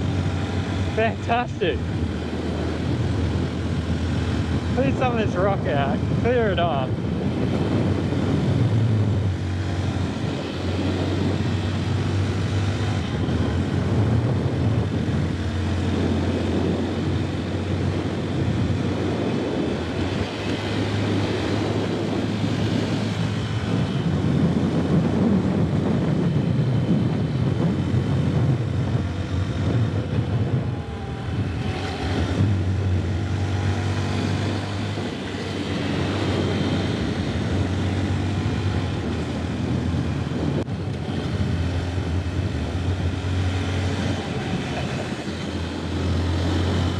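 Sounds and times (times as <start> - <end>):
motorcycle engine cruising: 0.0 - 46.9
wind noise: 0.0 - 46.9.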